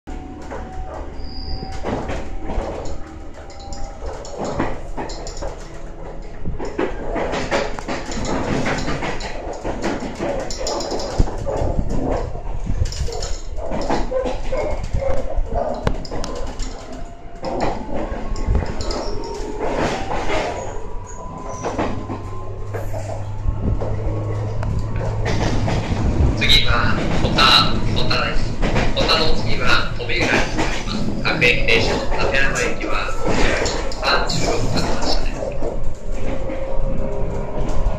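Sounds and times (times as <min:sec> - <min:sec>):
train running gear rumble: 0:00.1 - 0:37.9
wheel-on-rail noise: 0:00.1 - 0:37.9.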